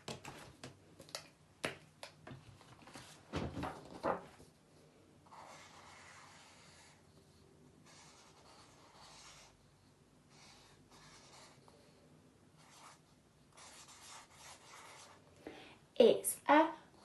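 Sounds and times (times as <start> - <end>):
pen scratchy drawing strokes: 5.3 - 11.8, 13.6 - 15.2.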